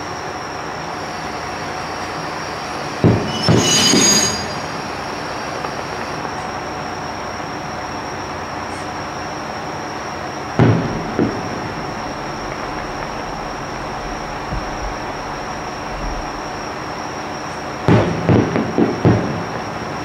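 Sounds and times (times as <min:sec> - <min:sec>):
railcar running noise: 0:00.0 - 0:20.0
high wheel squeal: 0:01.0 - 0:06.6
firework bangs: 0:01.5 - 0:07.0, 0:10.0 - 0:20.0.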